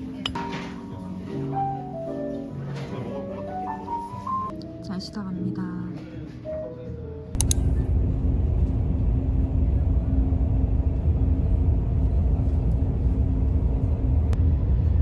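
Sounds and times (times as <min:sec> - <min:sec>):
faint steady hum: 0:07.4 - 0:14.4
vehicle road and engine rumble: 0:07.4 - 0:15.0.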